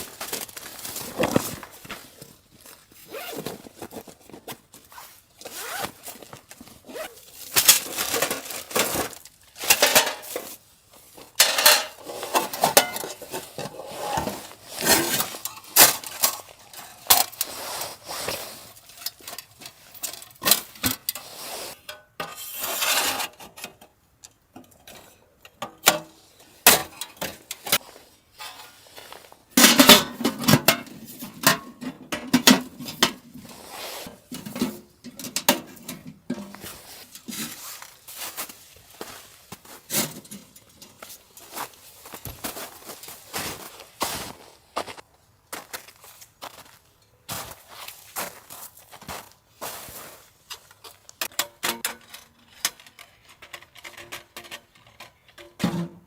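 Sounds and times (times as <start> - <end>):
pots and pans clinking: 9.6 - 10.5, 11.4 - 16.5.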